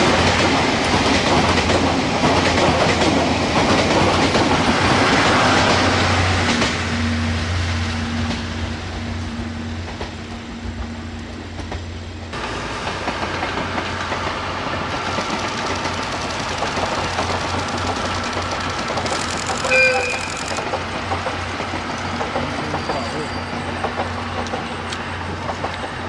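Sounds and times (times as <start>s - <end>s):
train rumbling and rattling past: 0.0s - 26.0s
train horn toot: 19.7s - 20.3s.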